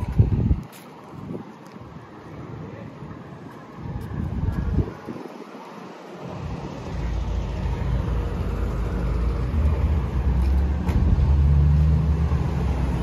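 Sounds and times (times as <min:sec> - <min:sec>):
car engine rumbling: 0:06.2 - 0:13.0.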